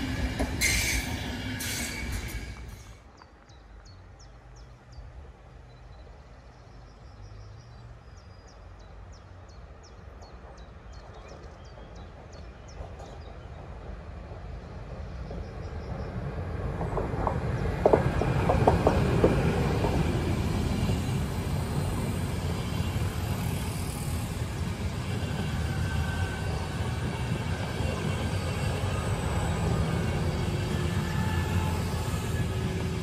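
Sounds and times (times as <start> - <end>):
train wheels rumbling on rails: 0.0 - 3.8, 9.8 - 33.0
sharp clacks of train wheels: 10.2 - 33.0.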